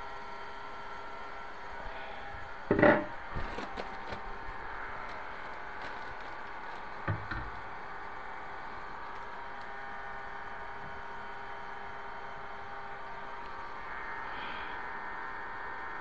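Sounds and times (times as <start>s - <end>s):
steady hum: 0.0s - 16.0s
wooden board clattering: 2.7s - 3.2s.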